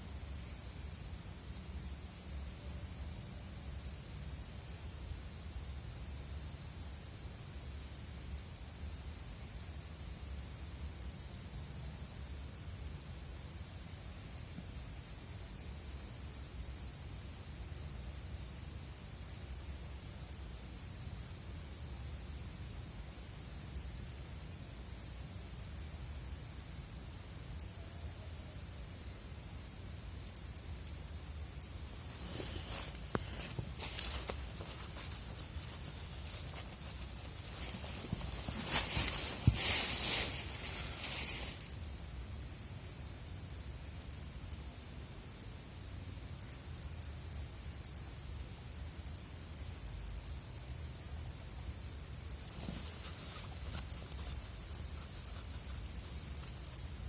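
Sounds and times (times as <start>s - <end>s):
rustle: 0.0s - 44.2s, 44.8s - 57.0s
insect chirping: 0.0s - 57.0s
insects trilling: 0.0s - 57.0s.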